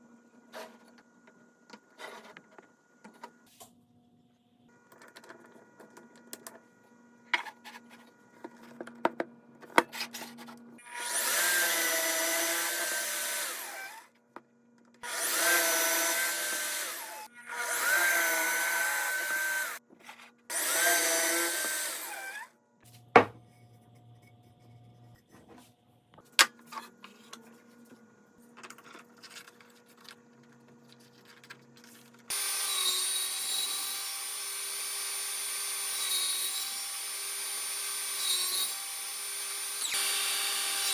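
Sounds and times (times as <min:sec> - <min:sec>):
power tool whining on wood: 0:10.8 - 0:14.1, 0:15.0 - 0:19.8, 0:20.5 - 0:22.5, 0:32.3 - 0:40.9
second power tool running: 0:15.0 - 0:19.8, 0:20.5 - 0:22.4.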